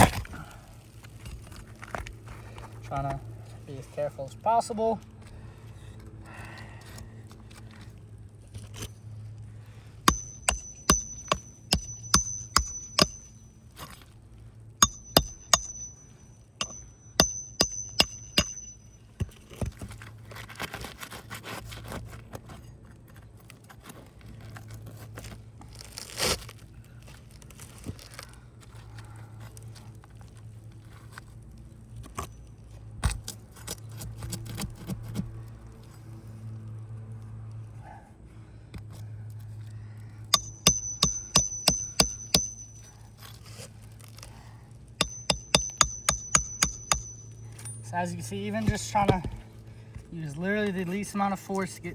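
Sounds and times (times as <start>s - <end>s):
hammer tapping metal tool: 10.1s - 13.4s, 14.8s - 19.4s, 40.3s - 42.9s, 45.0s - 47.9s.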